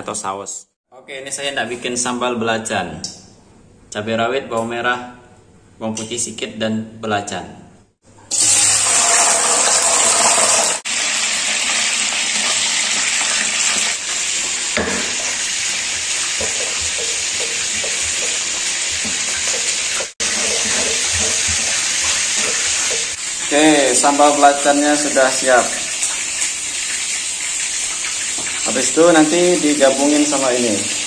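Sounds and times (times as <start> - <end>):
food sizzling in hot oil: 8.2 - 31.0.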